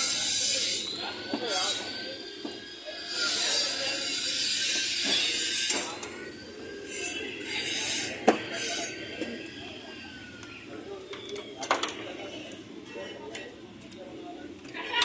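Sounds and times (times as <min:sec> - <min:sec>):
high-pitched tool hissing: 0:00.0 - 0:09.3.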